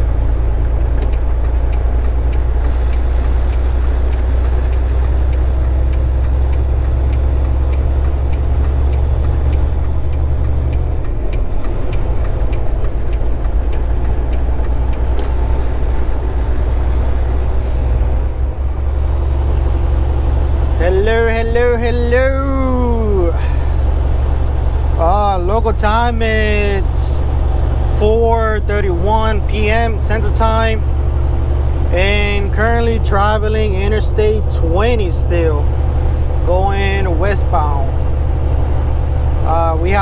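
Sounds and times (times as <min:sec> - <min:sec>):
road noise inside cab: 0:00.0 - 0:40.0
truck diesel engine drone: 0:00.0 - 0:40.0.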